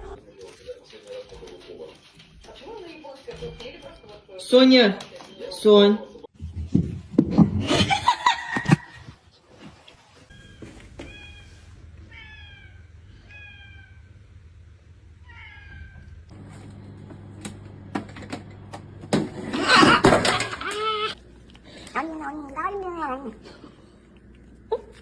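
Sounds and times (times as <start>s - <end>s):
cat meowing: 10.3s - 14.3s, 15.2s - 16.3s.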